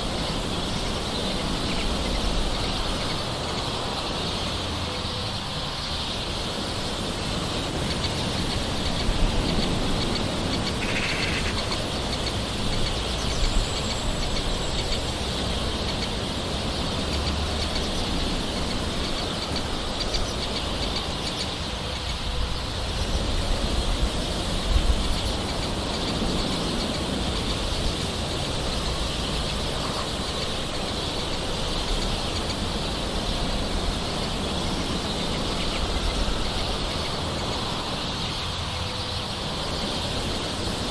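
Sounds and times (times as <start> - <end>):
short bird calls: 10.1 - 12.2.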